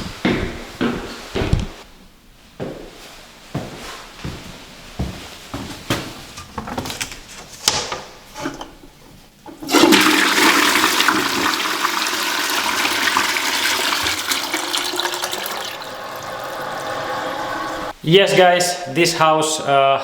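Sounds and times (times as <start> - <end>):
toilet flushing: 9.5 - 18.0.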